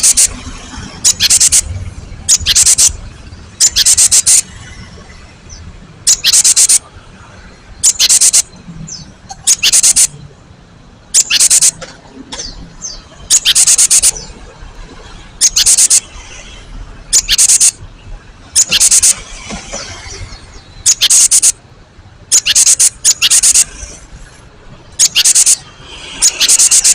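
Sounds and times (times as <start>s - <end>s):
faint bird calls: 0.0s - 0.4s, 1.0s - 1.7s, 2.3s - 3.0s, 3.6s - 4.5s, 6.0s - 6.9s, 7.8s - 8.6s, 9.3s - 10.2s, 11.1s - 11.8s, 12.4s - 14.3s, 15.4s - 16.1s, 17.1s - 17.8s, 18.6s - 19.3s, 20.8s - 21.6s, 22.3s - 24.0s, 25.0s - 26.9s
bird singing rapid phrase: 0.0s - 4.6s, 5.4s - 6.9s, 7.7s - 10.3s, 11.0s - 11.8s, 12.4s - 14.4s, 15.4s - 16.4s, 17.0s - 19.4s, 20.2s - 21.6s, 22.2s - 23.9s, 24.8s - 26.9s.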